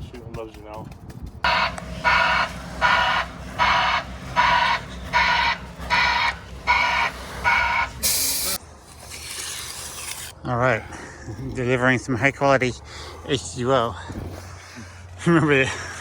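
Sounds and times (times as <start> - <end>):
reversing alarm beeping: 1.5 - 8.6.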